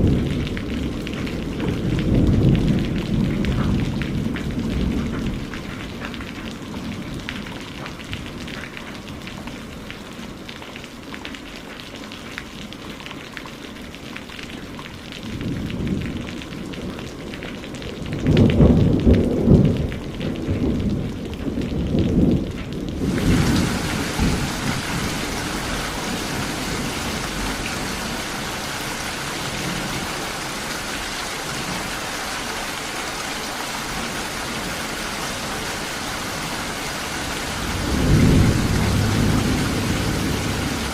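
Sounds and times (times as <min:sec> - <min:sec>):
rolling thunder: 0:00.0 - 0:05.5, 0:15.2 - 0:30.4, 0:37.2 - 0:40.9
rain falling: 0:00.0 - 0:40.9.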